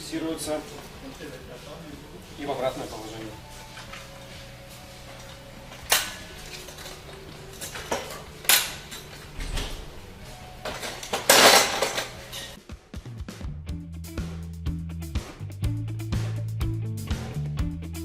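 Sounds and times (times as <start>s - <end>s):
metal clanks and clicks: 5.8s - 9.9s, 10.6s - 12.6s
metal clatter: 10.6s - 12.6s.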